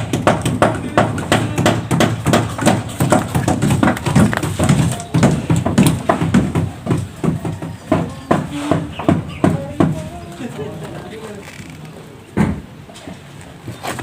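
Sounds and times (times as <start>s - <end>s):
rapid knocking on wood: 0.0s - 10.2s.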